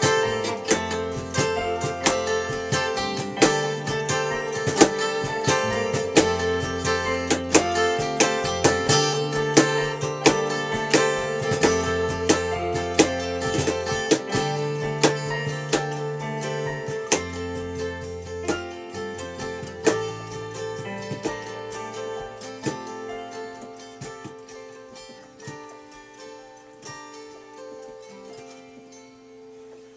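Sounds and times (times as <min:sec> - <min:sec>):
acoustic guitar plucked and strummed: 0:00.0 - 0:29.9.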